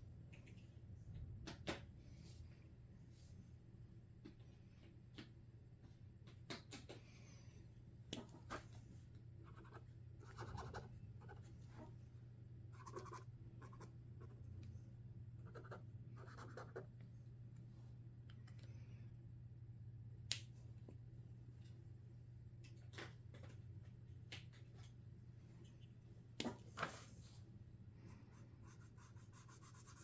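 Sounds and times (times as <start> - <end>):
steady low hum: 0.0 - 30.0
marker scratching on paper: 9.5 - 11.4, 12.8 - 14.4.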